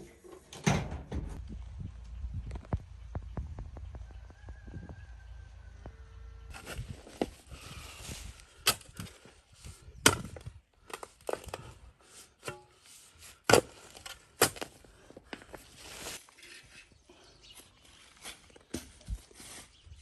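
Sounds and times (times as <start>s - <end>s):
axe chopping firewood: 10.0s - 11.7s, 13.4s - 14.8s.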